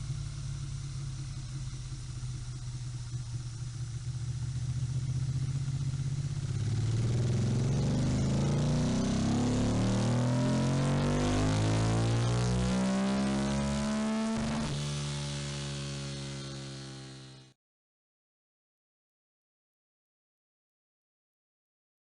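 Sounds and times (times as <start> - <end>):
motorcycle engine revving: 0.0 - 17.6.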